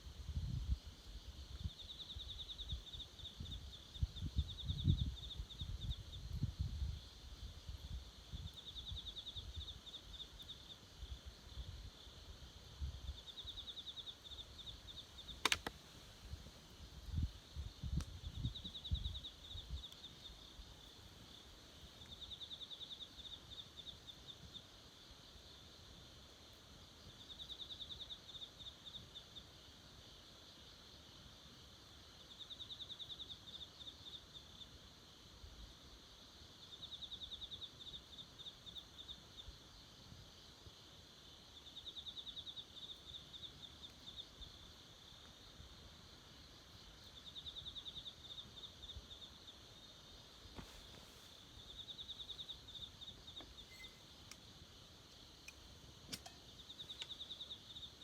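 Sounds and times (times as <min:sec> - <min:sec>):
faint background hiss: 0:00.0 - 0:58.0
faint clicks: 0:15.3 - 0:15.9, 0:53.3 - 0:54.5, 0:55.1 - 0:57.3.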